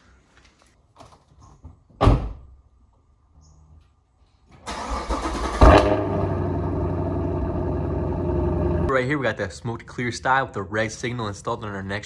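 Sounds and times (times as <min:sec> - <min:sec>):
car engine revving and idling: 0:05.3 - 0:08.9.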